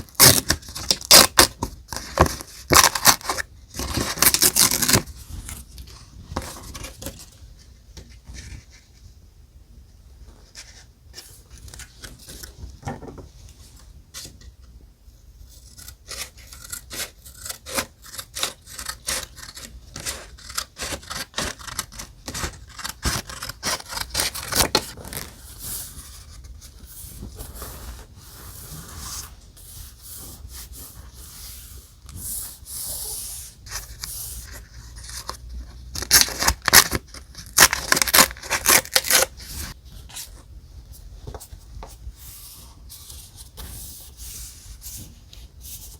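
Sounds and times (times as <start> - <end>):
paper crinkling and rustling: 20.0 - 28.1.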